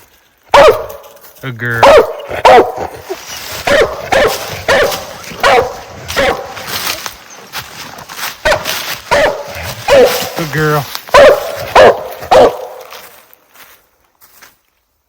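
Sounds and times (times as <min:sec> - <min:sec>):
hound barking: 0:00.5 - 0:01.2, 0:01.8 - 0:06.7, 0:08.4 - 0:10.5, 0:11.1 - 0:13.0.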